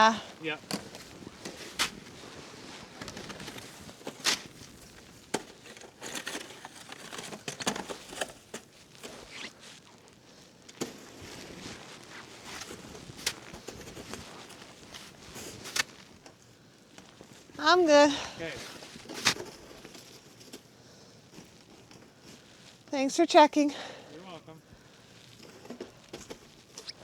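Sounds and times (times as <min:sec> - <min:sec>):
snow clothing rustling: 0:00.0 - 0:20.3.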